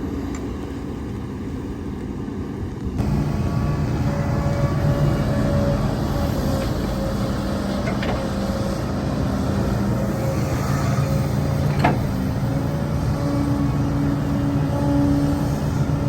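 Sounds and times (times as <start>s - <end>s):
heavy diesel engine running: 3.0s - 16.0s.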